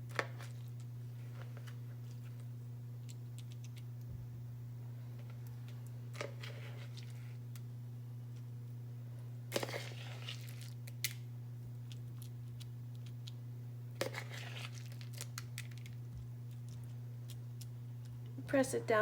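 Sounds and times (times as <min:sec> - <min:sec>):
steady low hum: 0:00.0 - 0:19.0
gritty rustle of seed: 0:09.6 - 0:10.8, 0:14.0 - 0:18.1.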